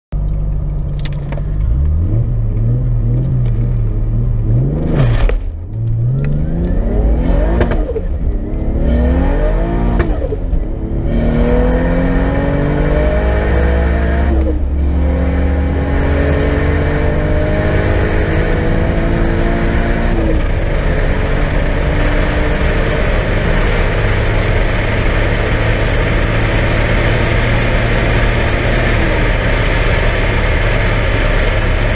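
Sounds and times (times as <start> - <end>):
turbocharged car engine accelerating: 0.2 - 31.9.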